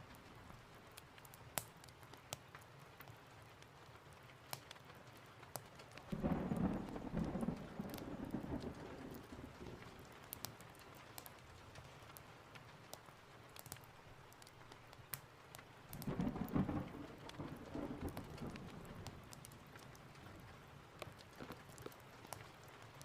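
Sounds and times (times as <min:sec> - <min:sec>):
steady rain: 0:00.0 - 0:23.0
thunder rumbling: 0:06.1 - 0:10.3, 0:15.9 - 0:20.2.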